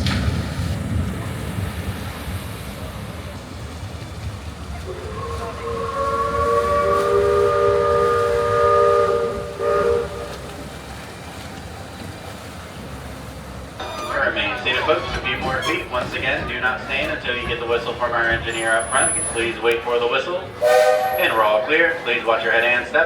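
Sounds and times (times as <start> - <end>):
train rumbling along track: 0.0 - 23.0
steam locomotive chime whistle: 4.9 - 10.7, 18.4 - 19.6, 20.6 - 23.0.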